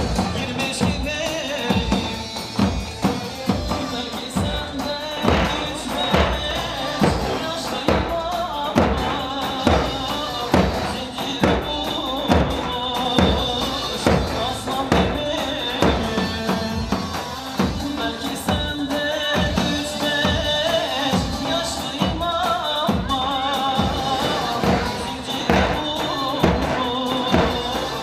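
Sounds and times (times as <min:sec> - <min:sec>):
heavy drum beat: 0:00.0 - 0:28.0
keyboard dance melody: 0:00.0 - 0:28.0.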